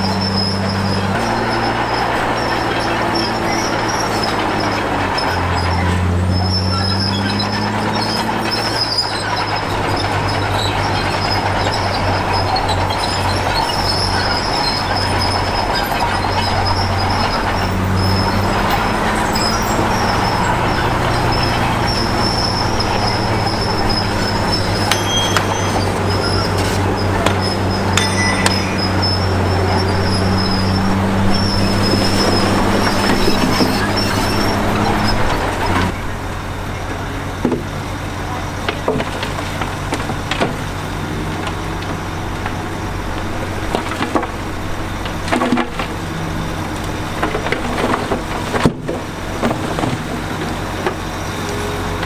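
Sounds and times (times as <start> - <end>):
metallic squeal of steel tracks: 0.0 - 36.8
bulldozer diesel engine running: 0.0 - 52.0
sharp metal clanks: 24.8 - 31.6.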